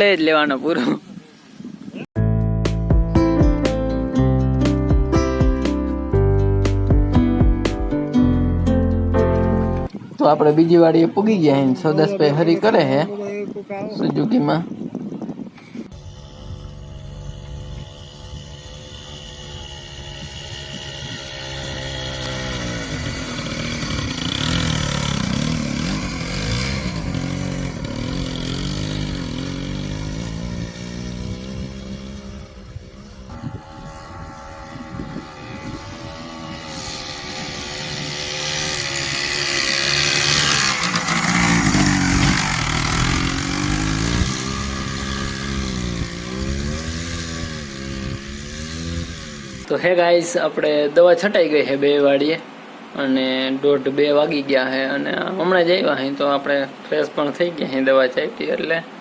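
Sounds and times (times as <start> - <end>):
engine speed rising and falling: 15.9 - 49.7.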